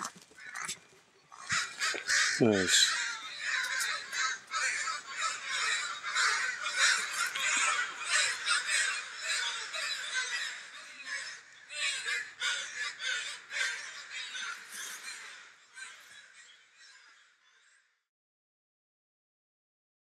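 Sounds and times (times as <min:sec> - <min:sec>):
crows cawing: 0:00.0 - 0:18.0.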